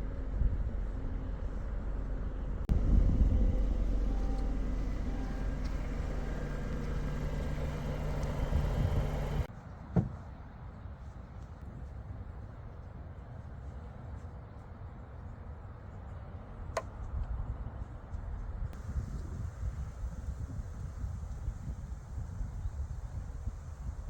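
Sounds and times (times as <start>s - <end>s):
car engine and road rumble: 0.0s - 10.2s, 16.6s - 24.0s.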